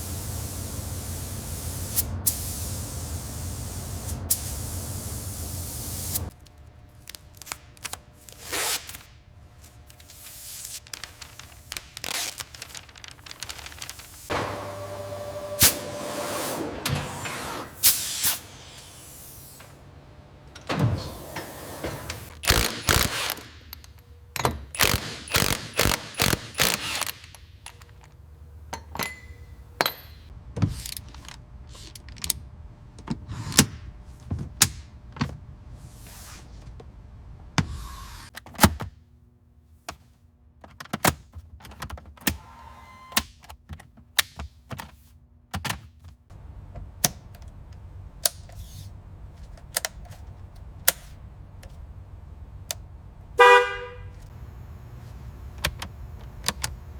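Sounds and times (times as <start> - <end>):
brief hissing swishes: 15.6 - 19.5
tools clicking and clanking on metal: 28.7 - 32.3.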